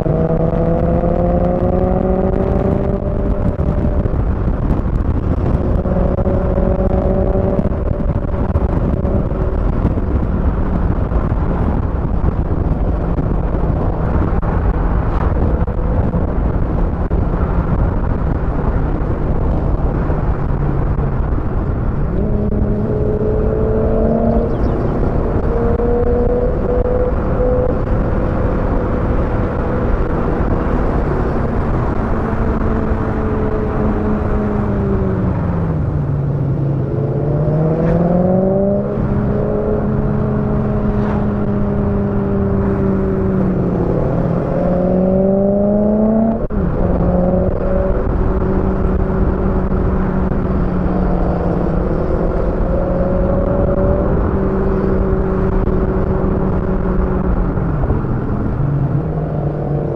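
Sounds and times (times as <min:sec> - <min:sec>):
car engine under way: 0:00.0 - 0:59.9
tyre and road noise: 0:00.0 - 0:59.9.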